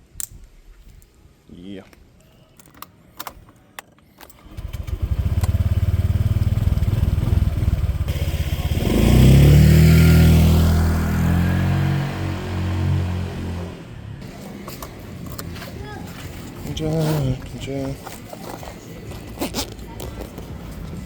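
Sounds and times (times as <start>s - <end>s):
moped engine running: 4.3s - 14.5s.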